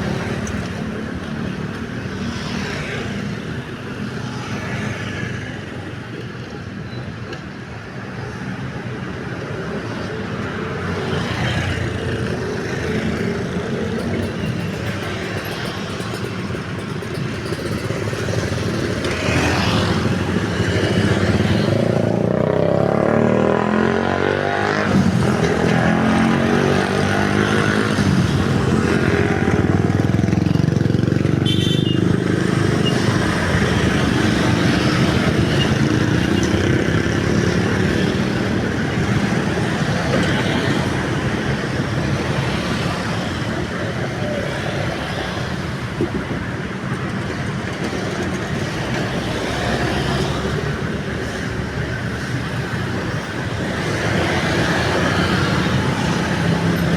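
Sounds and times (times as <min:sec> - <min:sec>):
cars passing: 0:00.0 - 0:06.6, 0:07.6 - 0:56.9
motorcycles passing: 0:00.0 - 0:06.9, 0:07.6 - 0:56.9.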